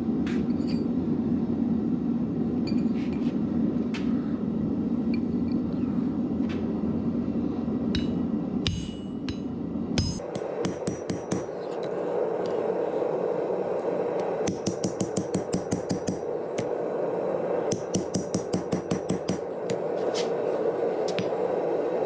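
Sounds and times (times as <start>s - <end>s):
hammer striking steel on anvil: 8.0s - 12.6s, 14.5s - 16.8s, 17.7s - 20.3s, 21.1s - 21.4s
steady rushing noise: 9.7s - 22.0s.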